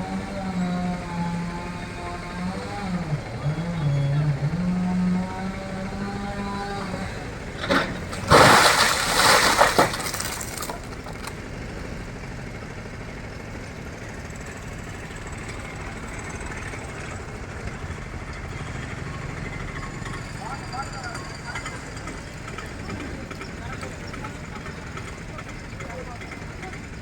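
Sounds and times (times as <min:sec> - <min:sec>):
tree falling with breaking wood: 0:07.6 - 0:11.4
wood cracking: 0:07.6 - 0:11.4.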